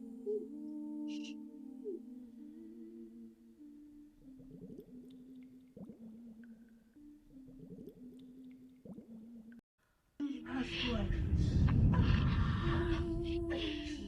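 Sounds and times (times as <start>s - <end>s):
slow melody of low held notes: 0.0s - 9.6s.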